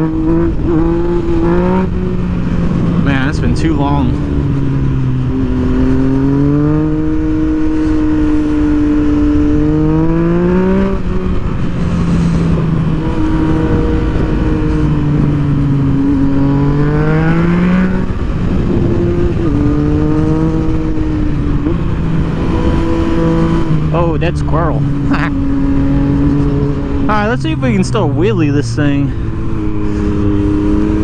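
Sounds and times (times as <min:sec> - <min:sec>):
motorcycle engine revving through gears: 0:00.0 - 0:31.0.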